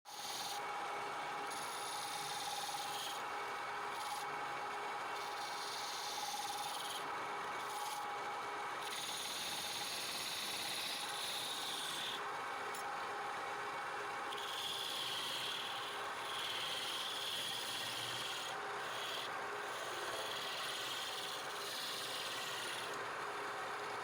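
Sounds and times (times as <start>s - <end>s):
turning tool scraping wood: 1.5s - 3.2s, 5.2s - 8.0s, 8.8s - 12.2s, 14.3s - 23.0s
lathe motor hum: 5.2s - 8.0s, 8.8s - 12.2s, 14.3s - 23.0s.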